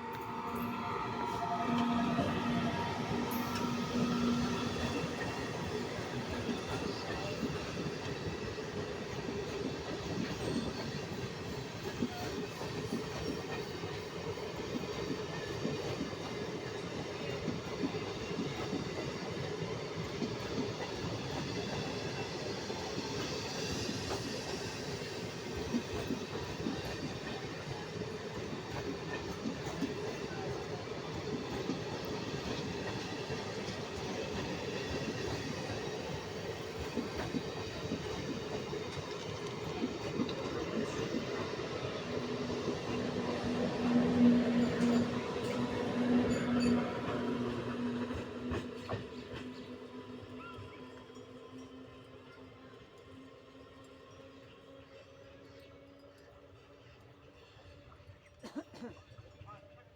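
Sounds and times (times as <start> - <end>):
train rumbling on track: 0.0 - 59.9.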